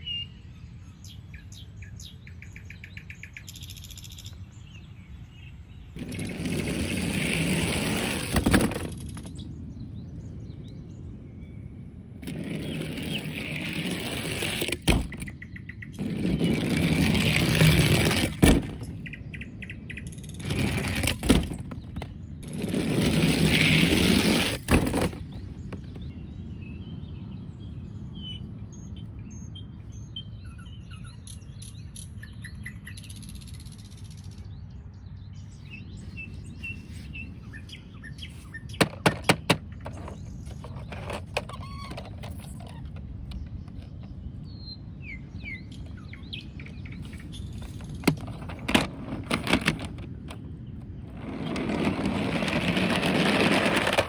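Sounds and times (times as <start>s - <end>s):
birds chirping faintly: 0.0s - 54.0s
low steady background rumble: 0.0s - 54.0s
loud rustling noise: 6.0s - 9.4s, 12.2s - 15.3s, 16.0s - 19.1s, 20.3s - 26.0s, 47.0s - 50.4s, 51.0s - 54.0s.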